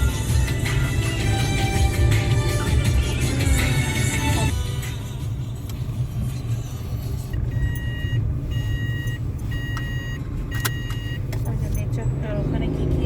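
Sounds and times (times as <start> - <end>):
car cabin road rumble: 0.0 - 13.0
electronic beep: 7.5 - 11.2.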